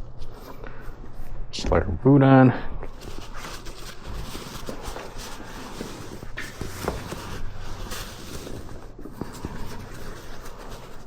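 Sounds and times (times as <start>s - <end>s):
rustling of handling: 2.7s - 11.0s.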